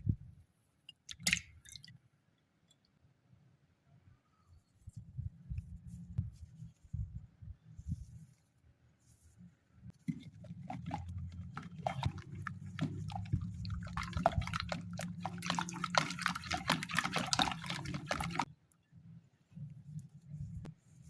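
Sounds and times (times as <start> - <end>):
eggs being beaten in bowl: 10.1 - 18.5.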